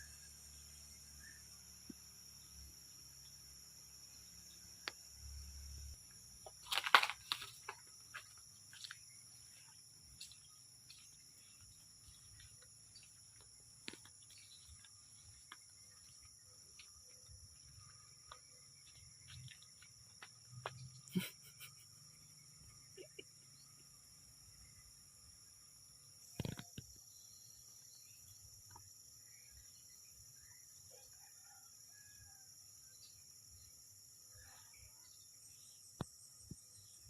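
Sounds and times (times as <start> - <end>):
high-pitched insect chorus: 0.0 - 37.0
small clicks and rustles: 6.5 - 7.9.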